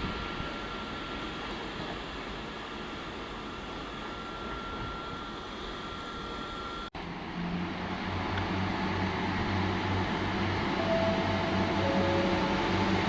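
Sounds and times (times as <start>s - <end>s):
train engine throbbing: 7.0s - 13.0s.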